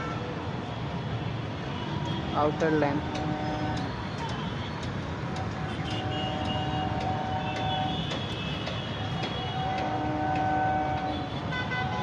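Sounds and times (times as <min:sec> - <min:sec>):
street traffic rumble: 0:00.0 - 0:12.0
vehicle horns: 0:01.7 - 0:04.8, 0:05.6 - 0:12.0.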